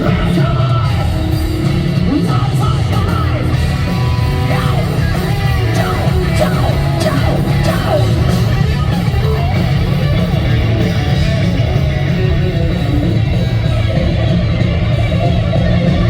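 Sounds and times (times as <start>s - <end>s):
distorted electric guitar: 0.0s - 16.0s
live rock band playing: 0.0s - 16.0s.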